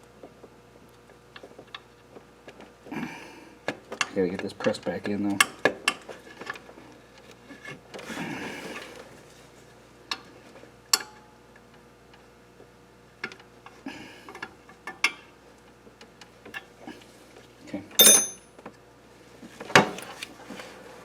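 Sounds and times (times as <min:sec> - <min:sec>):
metal parts clicking and tapping: 0:18.0 - 0:18.4.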